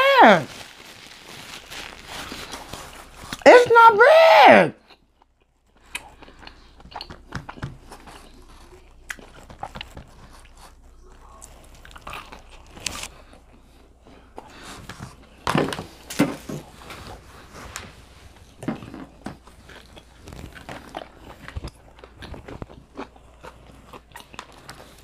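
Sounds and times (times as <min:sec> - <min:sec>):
person chewing: 0:04.8 - 0:15.4, 0:16.6 - 0:25.0.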